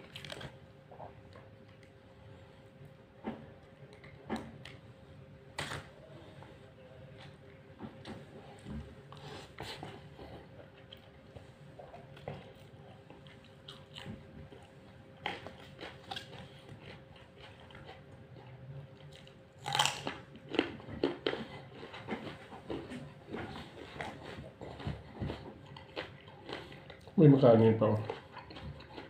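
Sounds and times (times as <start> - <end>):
crunching raw carrot: 0.0 - 0.6
chewing food: 0.0 - 4.8, 6.4 - 29.0.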